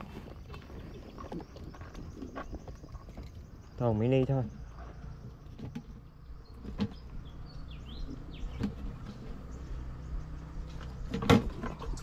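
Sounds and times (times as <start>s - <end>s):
high bird chirps: 0.8s - 11.1s
steady low hum: 4.4s - 12.0s.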